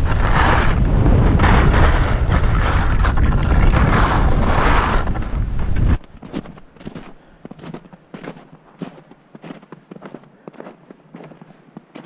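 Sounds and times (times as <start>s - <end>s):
wind buffeting microphone: 0.0s - 6.6s
skis sliding over icy snow: 0.0s - 12.0s.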